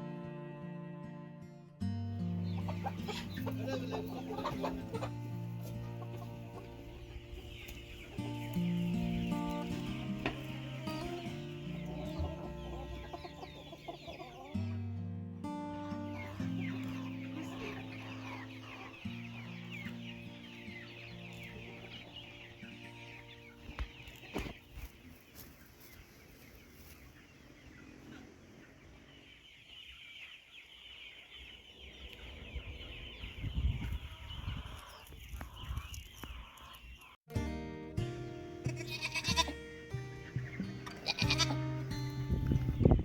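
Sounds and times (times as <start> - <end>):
soft background music: 0.0 - 24.5
chickens clucking and chirping: 2.3 - 14.9, 15.7 - 37.2, 39.4 - 43.0.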